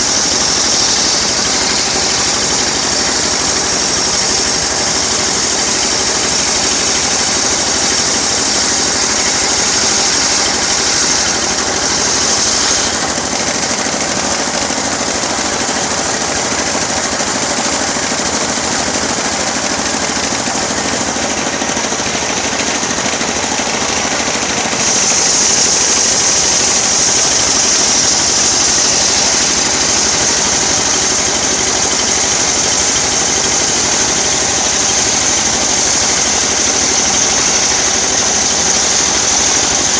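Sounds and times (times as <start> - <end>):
engine-driven sawmill running: 0.0 - 39.9
high hiss of saw cutting wood: 0.0 - 39.9.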